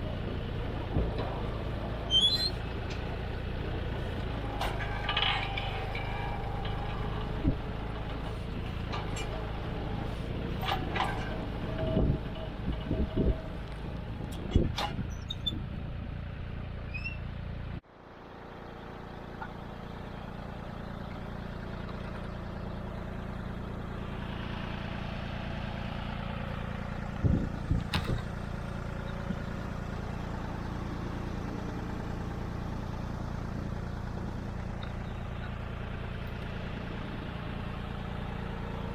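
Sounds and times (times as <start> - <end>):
tractor diesel engine running: 0.0 - 38.9
sharp clunks: 27.7 - 28.3.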